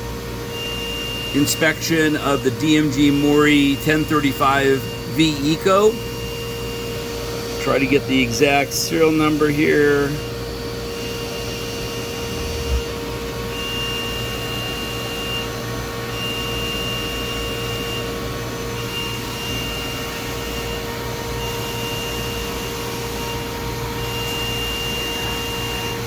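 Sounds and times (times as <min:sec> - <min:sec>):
high whine: 0:00.0 - 0:15.6
shop machinery humming: 0:00.0 - 0:26.0.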